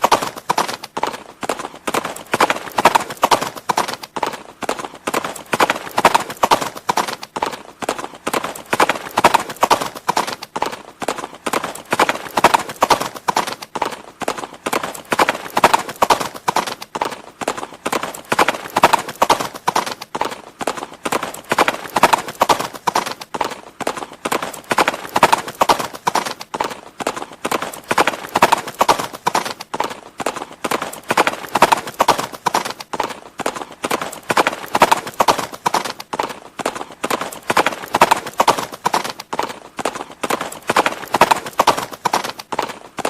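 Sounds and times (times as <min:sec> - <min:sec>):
horse hooves clip-clopping: 0:00.0 - 0:43.0.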